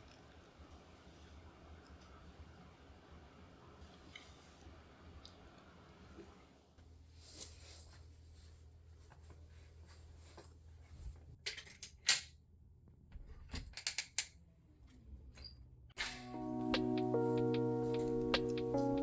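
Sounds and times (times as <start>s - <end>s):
background music with chiming notes: 16.0s - 19.0s.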